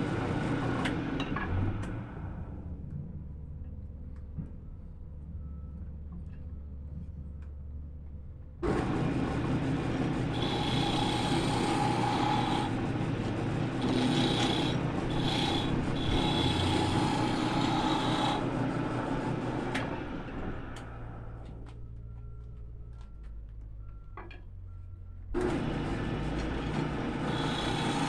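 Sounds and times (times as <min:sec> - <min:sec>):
wood lathe running: 0:08.6 - 0:20.5, 0:25.4 - 0:28.0
tool rubbing spinning wood whistling: 0:10.3 - 0:18.6, 0:26.7 - 0:28.0.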